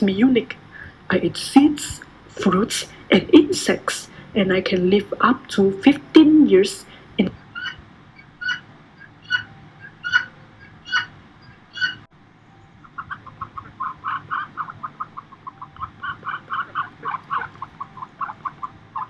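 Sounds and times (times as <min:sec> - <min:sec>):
bird calls: 0:07.4 - 0:12.1, 0:12.7 - 0:19.0.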